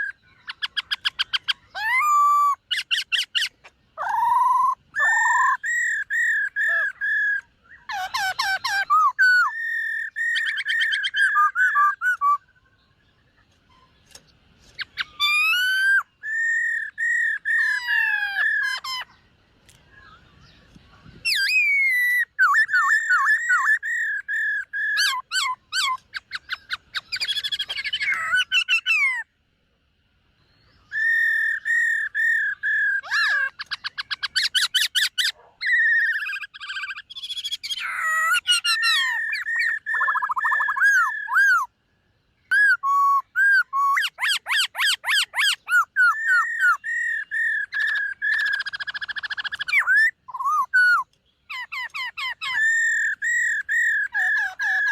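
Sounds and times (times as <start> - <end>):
bird whistled phrases and trills: 0.0 - 29.4, 30.3 - 54.9.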